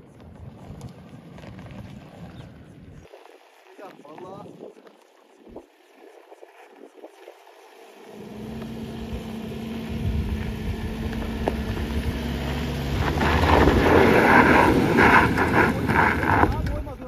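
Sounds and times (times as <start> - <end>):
off-road vehicle engine revving: 7.2 - 17.0
tyres spinning in loose ground: 8.3 - 17.0.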